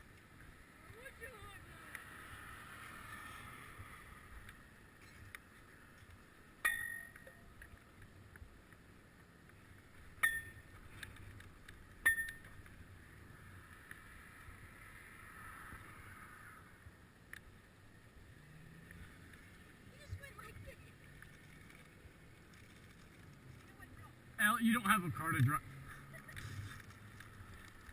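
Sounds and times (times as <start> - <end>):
wind and riding noise: 0.0 - 27.9
faint ticks: 1.8 - 3.4, 4.4 - 6.3, 18.7 - 24.1.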